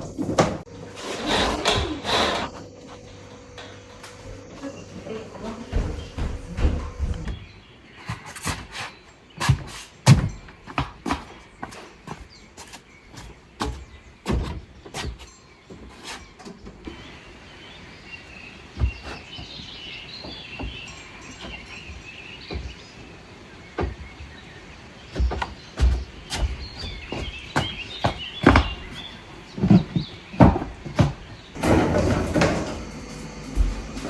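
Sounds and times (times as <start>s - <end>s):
small birds chirping: 1.8s - 31.6s
knocks and clatter: 29.6s - 34.0s.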